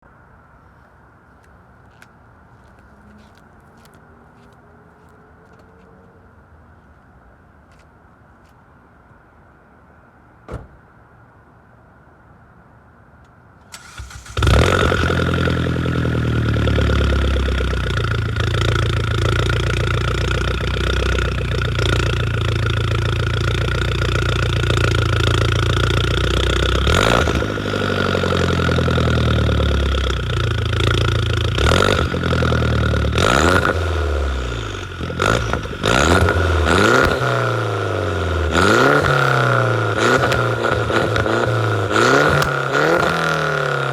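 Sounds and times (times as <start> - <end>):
car engine idling and revving: 13.7 - 43.9.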